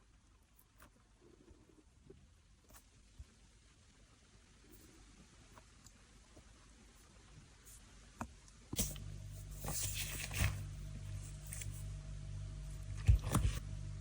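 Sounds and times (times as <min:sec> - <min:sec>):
steady low hum: 0:08.7 - 0:14.0.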